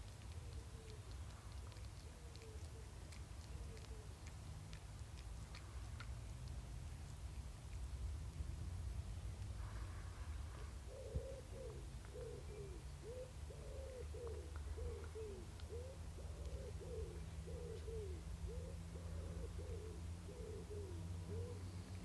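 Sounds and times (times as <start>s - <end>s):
bird calling softly: 0.1s - 4.4s, 9.7s - 22.0s.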